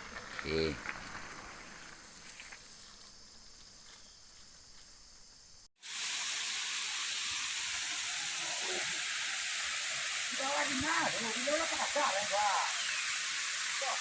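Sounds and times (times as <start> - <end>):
faint outdoor noise: 0.0 - 14.0
waterfall rushing: 5.9 - 14.0.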